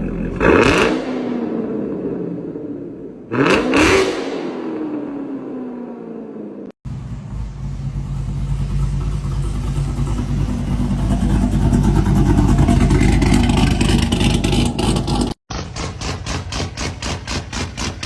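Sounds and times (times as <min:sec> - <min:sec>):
car engine running: 0:06.9 - 0:18.0.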